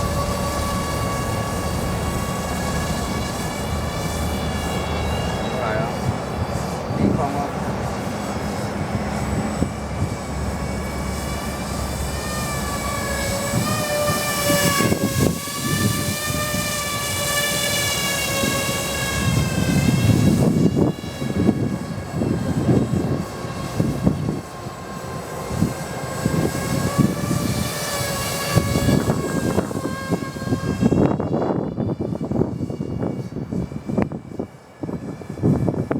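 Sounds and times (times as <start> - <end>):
electric rotors whining: 0.0 - 35.9
wind buffeting microphone: 0.0 - 35.9.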